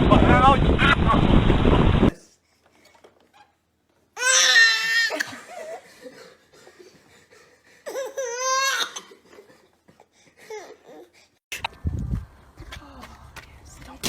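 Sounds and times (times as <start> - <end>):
child crying high-pitched: 4.2 - 5.2.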